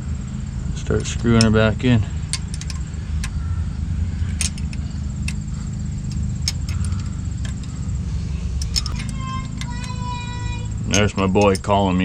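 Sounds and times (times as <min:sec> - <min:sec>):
steady low hum: 0:00.0 - 0:12.0
bolt threaded in metallic clicks: 0:00.9 - 0:03.4, 0:04.2 - 0:10.0, 0:10.8 - 0:11.8.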